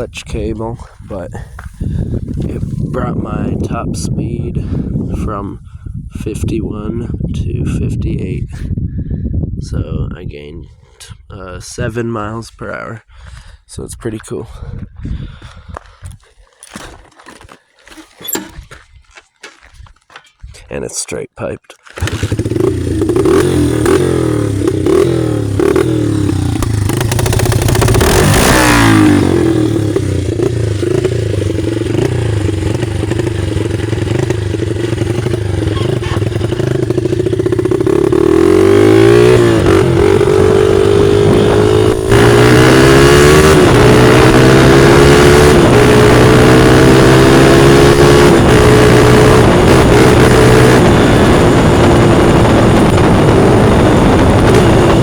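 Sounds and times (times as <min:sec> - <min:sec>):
dirt bike engine revving: 0:17.9 - 0:18.7, 0:22.0 - 0:55.0.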